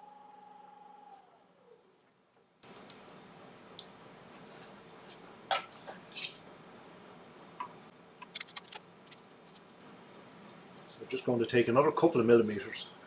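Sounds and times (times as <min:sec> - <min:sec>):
tool clicks and scrapes: 0:05.6 - 0:06.4, 0:08.2 - 0:08.8.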